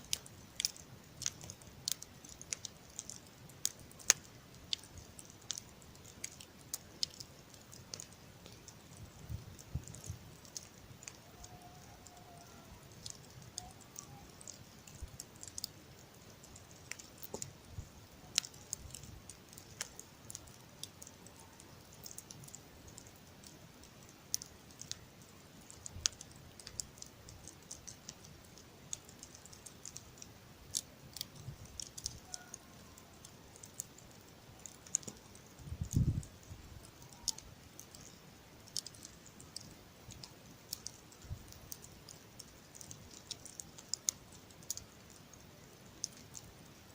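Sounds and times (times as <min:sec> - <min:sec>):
campfire crackling and popping: 0:00.0 - 0:46.9.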